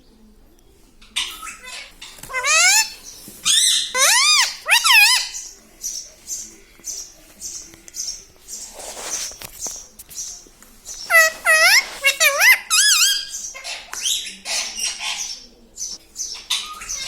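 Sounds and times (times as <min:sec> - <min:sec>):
parrot chirping: 0:01.2 - 0:05.5, 0:11.0 - 0:15.2
parrot squawking: 0:01.2 - 0:05.5, 0:11.1 - 0:15.2
scratchy rustle: 0:08.5 - 0:12.4.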